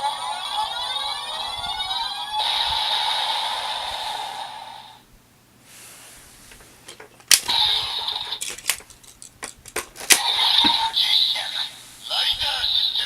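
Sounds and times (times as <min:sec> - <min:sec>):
toy electronic sound effect: 0:00.0 - 0:04.5, 0:07.5 - 0:08.5
plastic clicks: 0:06.5 - 0:07.6, 0:08.2 - 0:10.8.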